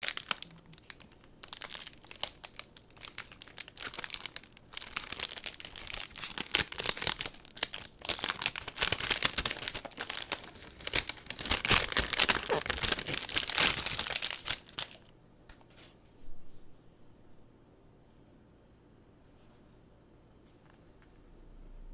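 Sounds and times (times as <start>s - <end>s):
packaging crinkling and tearing: 0.0s - 15.1s.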